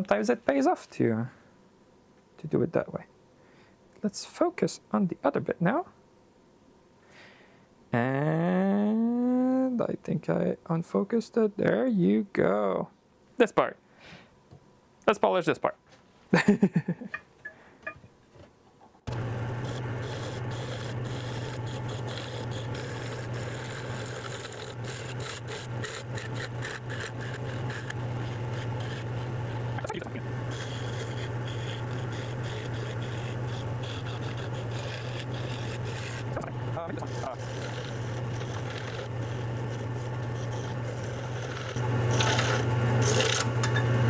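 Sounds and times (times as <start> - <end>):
rubbing on spinning wood: 19.1 - 44.0
wood lathe motor hum: 19.1 - 44.0.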